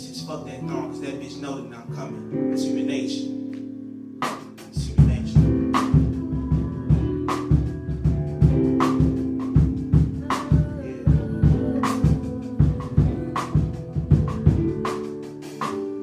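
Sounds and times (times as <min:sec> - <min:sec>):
sustained keyboard chords: 0:00.0 - 0:16.0
drum kit playing a groove: 0:04.2 - 0:16.0.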